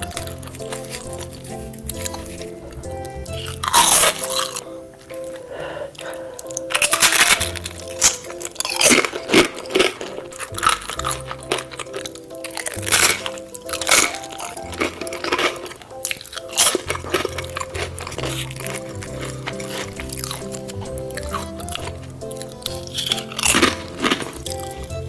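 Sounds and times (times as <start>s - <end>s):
person chewing crunchy food: 0.0s - 25.0s
background music with bass line: 16.9s - 25.0s.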